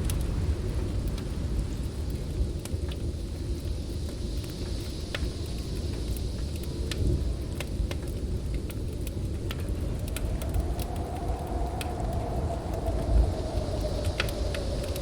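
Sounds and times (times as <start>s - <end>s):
storm wind rumbling and gusting: 0.0s - 15.0s
whistling wind howl: 0.0s - 15.0s
wood fire crackling and popping: 0.0s - 15.0s.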